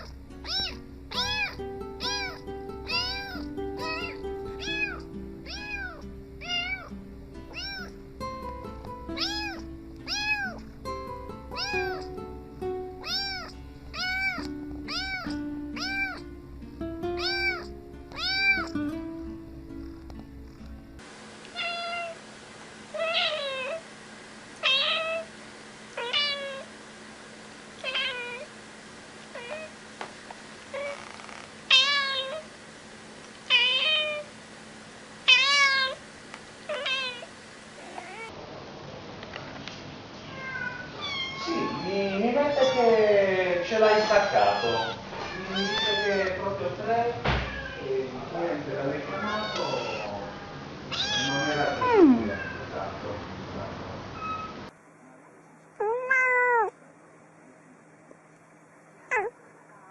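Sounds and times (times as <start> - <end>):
cat meowing: 0.0 - 6.9, 7.5 - 8.0, 9.2 - 10.7, 11.5 - 12.2, 13.0 - 16.3, 17.2 - 18.8, 21.5 - 22.2, 22.9 - 23.8, 24.6 - 25.3, 26.0 - 26.7, 27.8 - 28.5, 29.3 - 29.7, 30.7 - 32.5, 33.5 - 34.3, 35.3 - 36.0, 36.7 - 38.3, 40.3 - 43.1, 43.8 - 46.4, 47.4 - 48.0, 49.1 - 52.7, 55.8 - 56.8, 59.1 - 59.4
background music: 0.1 - 21.0.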